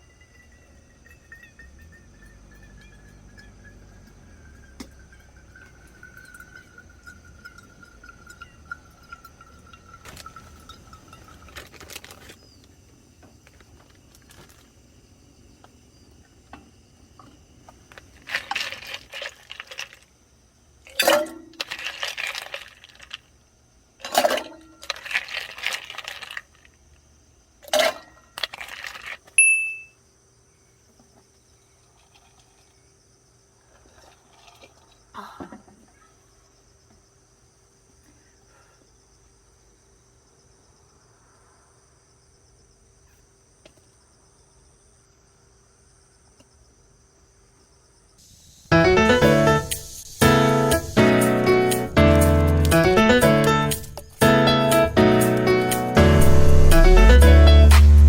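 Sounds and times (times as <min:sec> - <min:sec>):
hard objects clinking and clattering: 0:00.0 - 0:12.4, 0:17.9 - 0:20.1, 0:20.9 - 0:23.2, 0:24.0 - 0:26.6, 0:27.6 - 0:29.9.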